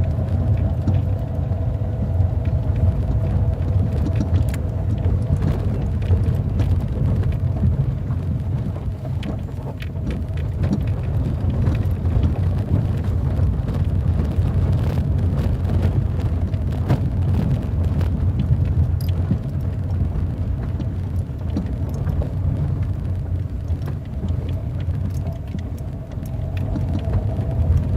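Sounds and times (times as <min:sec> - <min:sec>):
car driving rumble: 0:00.0 - 0:27.9
small clicks and knocks: 0:16.4 - 0:27.9.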